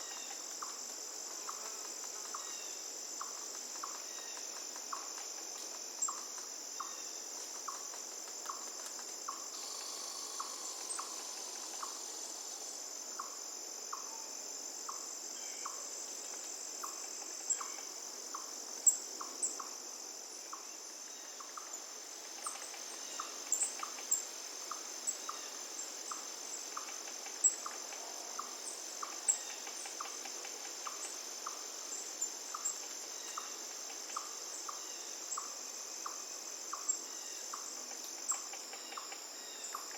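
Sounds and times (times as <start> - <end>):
high-pitched insect trill: 0.0 - 39.9
running water hiss: 4.6 - 13.9.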